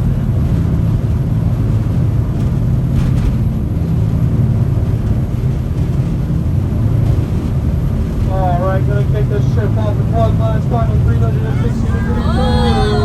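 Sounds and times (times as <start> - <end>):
boat engines droning: 0.0 - 13.0.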